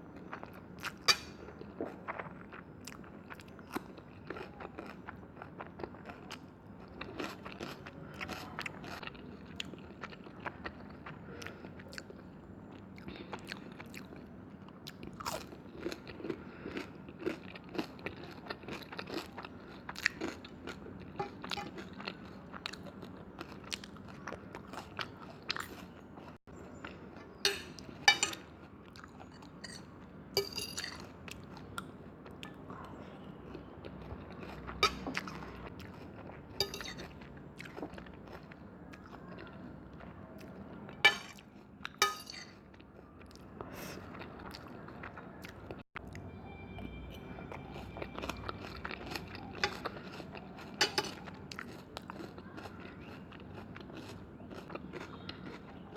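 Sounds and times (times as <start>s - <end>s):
chewing: 0.2s - 30.2s, 30.8s - 46.2s, 47.2s - 55.9s.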